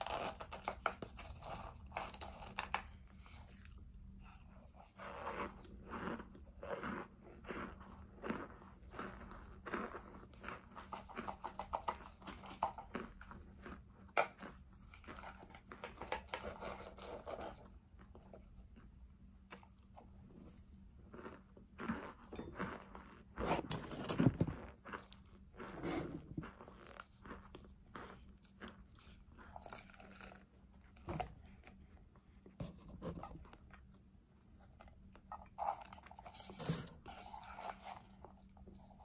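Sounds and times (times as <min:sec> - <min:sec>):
crunchy chewing: 0:00.0 - 0:23.7, 0:24.5 - 0:32.0.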